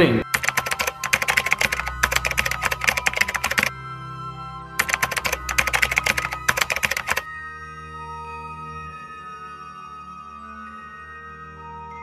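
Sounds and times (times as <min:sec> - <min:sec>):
soft background music: 0:00.0 - 0:12.0
rapid keyboard typing: 0:00.2 - 0:03.7, 0:04.8 - 0:07.3.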